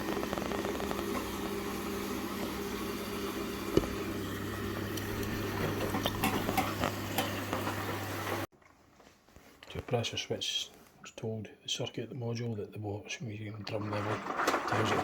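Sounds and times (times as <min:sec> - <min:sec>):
water running into washing machine: 0:00.0 - 0:08.5, 0:13.6 - 0:15.0.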